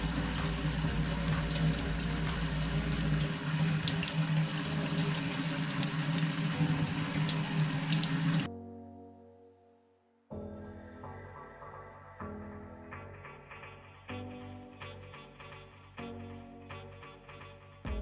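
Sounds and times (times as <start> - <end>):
running water splashing: 0.0 - 8.5.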